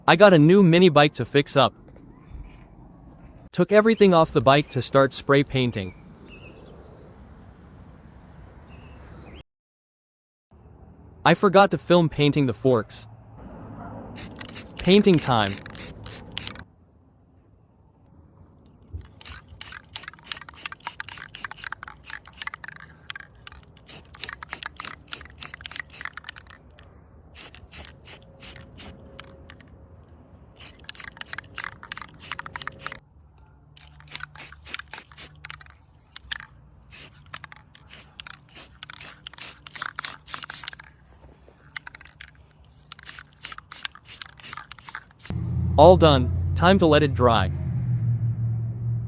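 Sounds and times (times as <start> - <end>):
spray can ball rattling: 3.9 - 5.8, 14.2 - 16.6, 19.0 - 26.8, 27.4 - 29.6, 30.6 - 33.0, 33.8 - 45.3
spray paint hissing: 3.9 - 6.0, 14.1 - 16.6, 19.0 - 26.6, 27.4 - 29.6, 30.6 - 33.0, 33.8 - 45.3.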